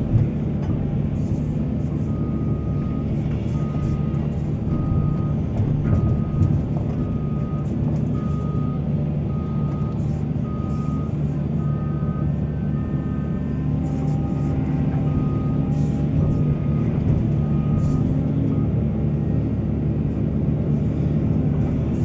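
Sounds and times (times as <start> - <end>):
heavy diesel machinery running: 0.0 - 22.0
back-up alarm beeping: 2.0 - 18.8.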